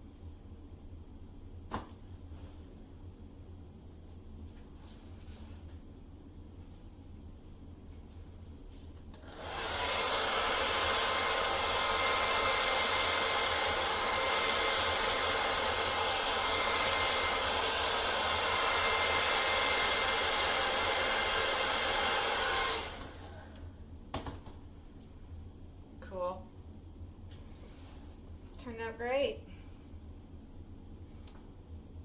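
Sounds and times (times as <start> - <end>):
hair dryer blowing: 9.2 - 23.6.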